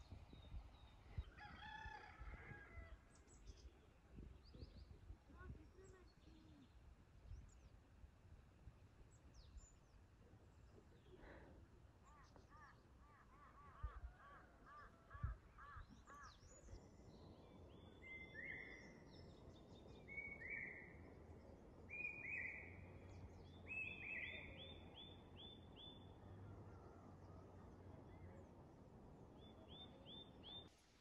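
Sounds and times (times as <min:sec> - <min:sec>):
birdsong: 0:09.1 - 0:30.7.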